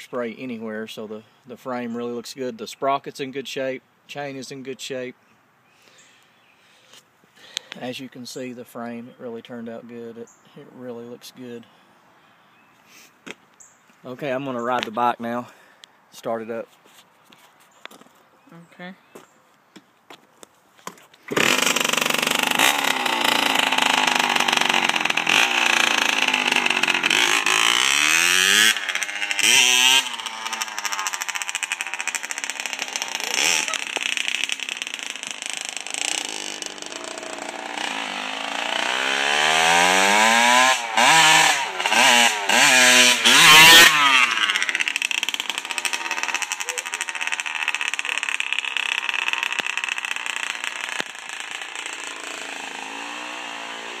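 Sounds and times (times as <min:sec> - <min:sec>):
two-stroke engine starting and revving: 0:21.3 - 0:54.0.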